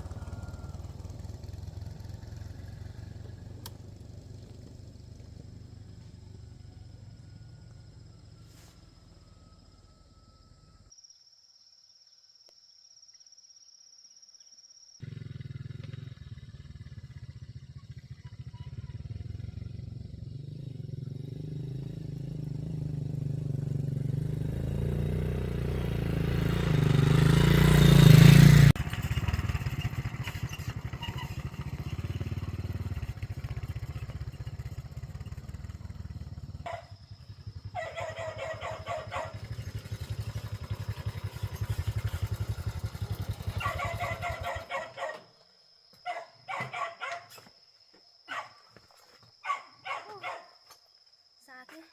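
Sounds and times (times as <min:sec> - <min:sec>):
engine running: 0:00.0 - 0:09.8, 0:15.0 - 0:44.8.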